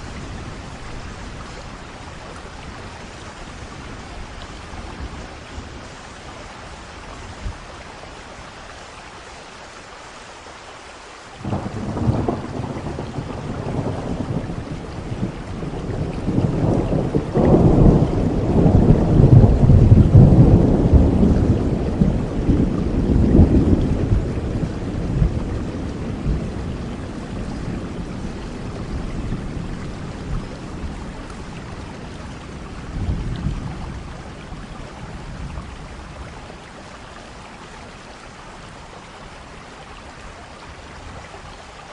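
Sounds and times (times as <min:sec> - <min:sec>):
steady rain falling: 0:00.0 - 0:41.9
thunder rumbling: 0:11.4 - 0:36.2.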